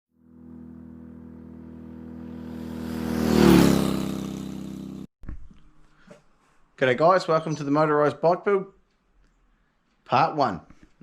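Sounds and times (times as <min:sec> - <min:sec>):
two-stroke engine passing by: 0:00.2 - 0:05.1.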